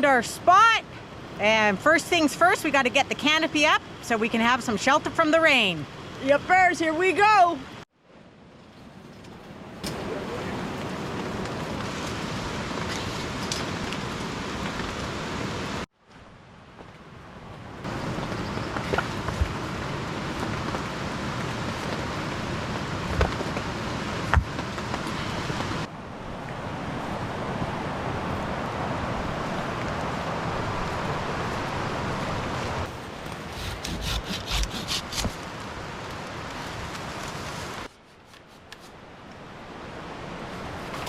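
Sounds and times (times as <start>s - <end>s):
scraping strokes: 33.3s - 35.4s.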